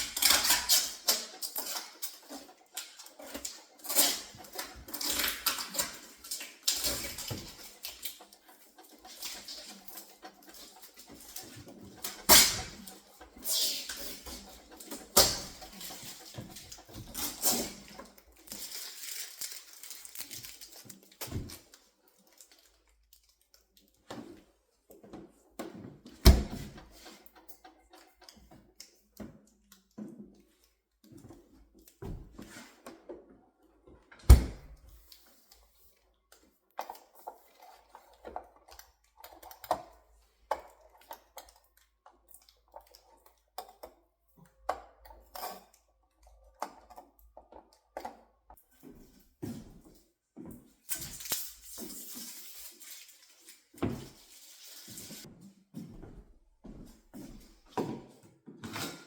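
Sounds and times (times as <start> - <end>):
packaging rustling: 17.0 - 22.8.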